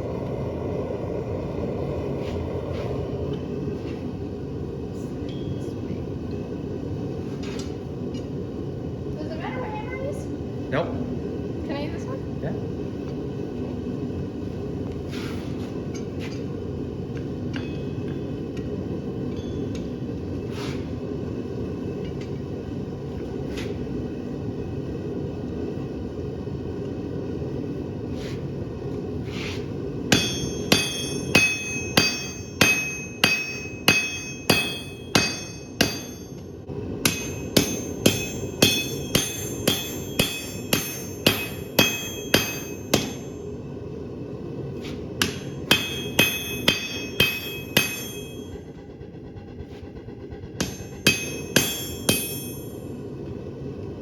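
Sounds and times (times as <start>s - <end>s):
forge roaring: 0.0s - 5.0s
hammer striking steel on anvil: 17.5s - 18.2s, 19.3s - 19.9s, 30.1s - 36.4s, 37.0s - 43.4s, 45.2s - 48.6s, 50.6s - 52.9s.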